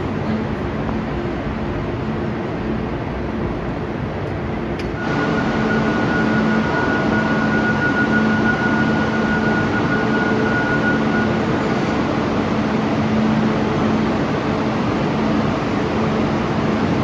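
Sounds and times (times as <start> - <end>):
high whine: 0.0 - 17.0
train running: 0.0 - 17.0.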